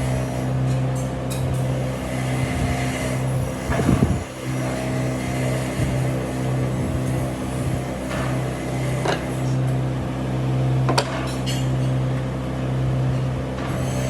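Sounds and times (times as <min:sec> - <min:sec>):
electric motor humming: 0:00.0 - 0:00.6, 0:01.6 - 0:09.6.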